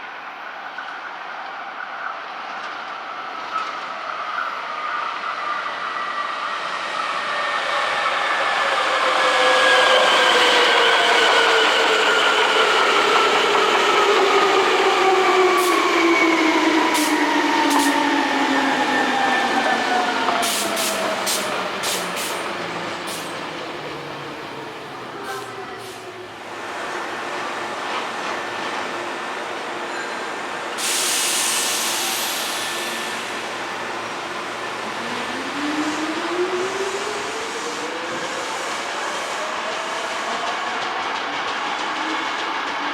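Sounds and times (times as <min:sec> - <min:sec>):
electric train rumbling: 0:02.3 - 0:42.9
loud air hiss: 0:17.0 - 0:18.0, 0:20.4 - 0:23.4, 0:30.7 - 0:34.0
brief high hisses: 0:30.8 - 0:33.5.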